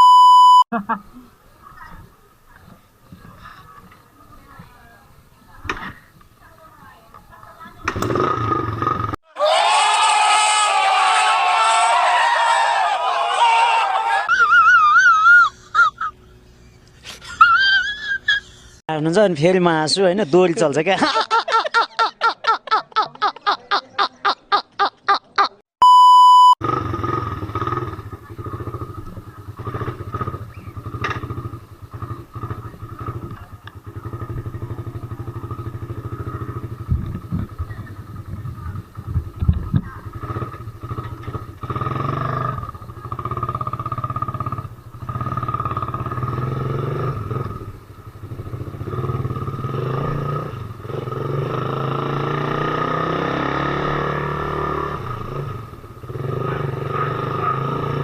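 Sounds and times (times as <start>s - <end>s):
loud steady beep: 0.0s - 0.7s, 25.8s - 26.6s
motorcycle engine running: 1.7s - 9.2s, 26.6s - 58.0s.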